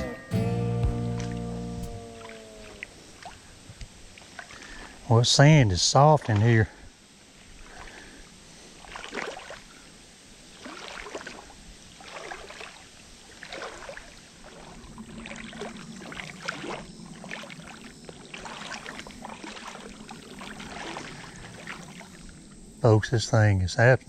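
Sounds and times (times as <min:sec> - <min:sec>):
water sloshing around wading legs: 0:00.9 - 0:05.1, 0:06.2 - 0:22.8.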